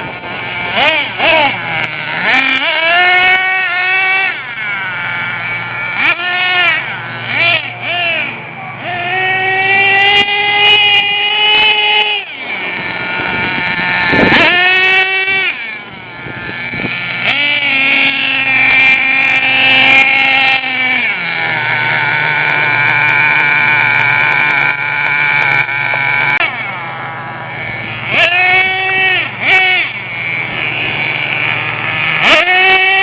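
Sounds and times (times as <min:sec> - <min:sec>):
small nitro engine whining: 0:00.0 - 0:33.0.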